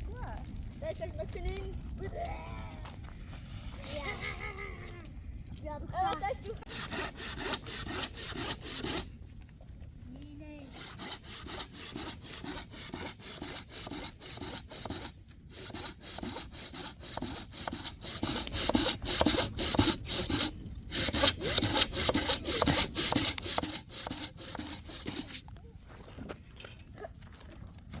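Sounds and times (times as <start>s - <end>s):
hand saw cutting wood: 6.6s - 9.1s, 10.6s - 25.4s.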